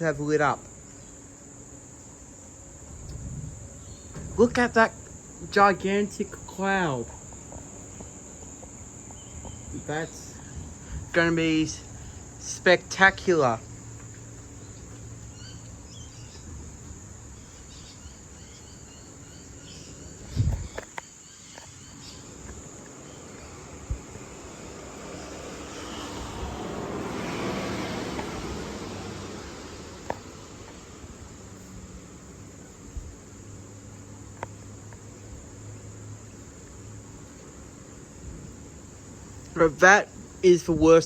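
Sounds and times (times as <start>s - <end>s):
crickets trilling: 0.0s - 41.0s
thump: 4.1s - 4.4s.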